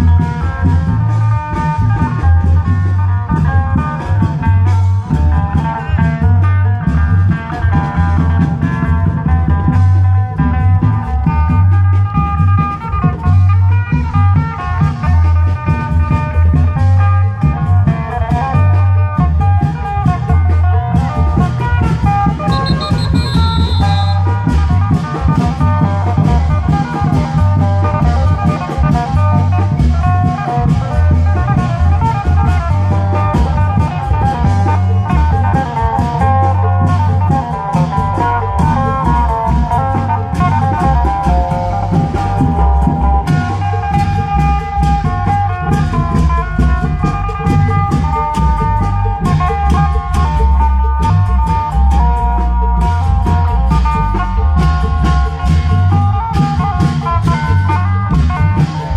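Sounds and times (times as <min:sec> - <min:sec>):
deep bass: 0:00.0 - 0:58.9
drum band playing: 0:00.0 - 0:58.9
fast plucked melody: 0:19.1 - 0:51.7
pounding drums: 0:20.0 - 0:35.5
plucked melody: 0:21.6 - 0:24.9.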